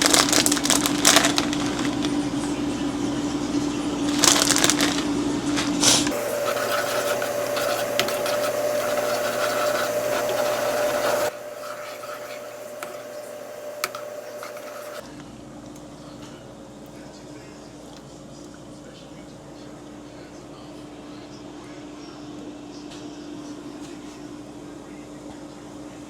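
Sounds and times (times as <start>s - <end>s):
steady mechanical hum: 0.0s - 26.0s
rustling and scraping: 4.2s - 15.0s.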